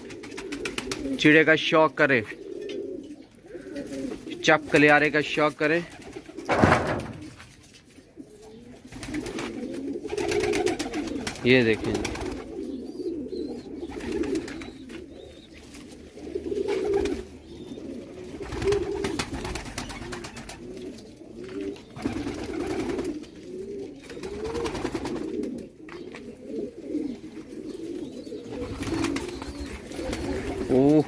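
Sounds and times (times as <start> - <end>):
pigeons cooing: 0.0 - 31.0.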